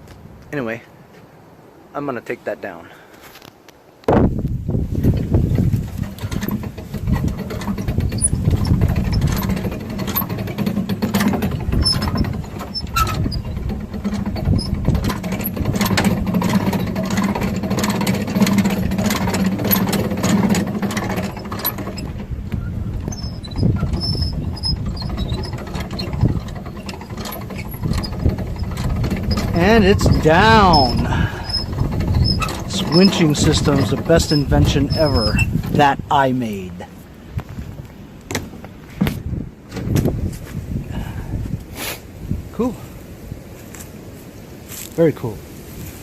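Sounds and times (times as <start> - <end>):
clicks and rattles: 5.0 - 35.9
winch humming: 5.2 - 37.2.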